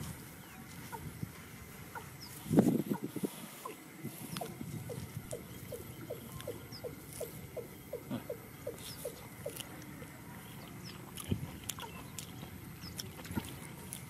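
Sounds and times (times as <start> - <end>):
faint high chirps of small birds: 0.2 - 1.3, 1.9 - 13.5.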